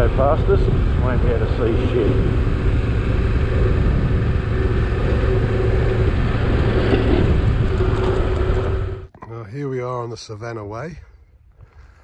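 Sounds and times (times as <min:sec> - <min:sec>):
motorcycle engine running: 0:00.0 - 0:09.1
wind and road rumble: 0:00.0 - 0:09.1.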